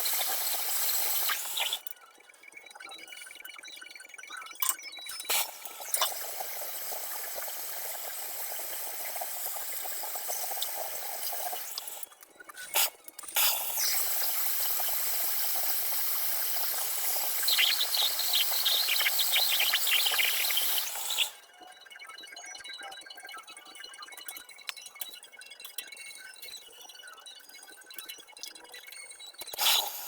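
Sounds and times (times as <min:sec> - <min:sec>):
water running: 0:00.0 - 0:01.8, 0:05.3 - 0:12.0, 0:12.6 - 0:21.3.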